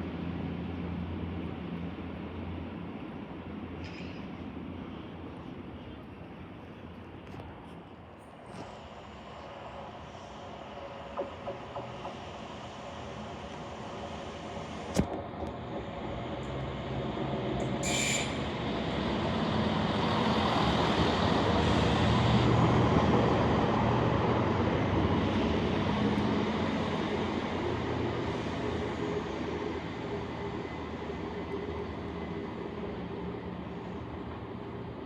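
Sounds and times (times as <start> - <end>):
train rumbling past: 0.0 - 35.0
high-pitched squeal: 17.8 - 18.5.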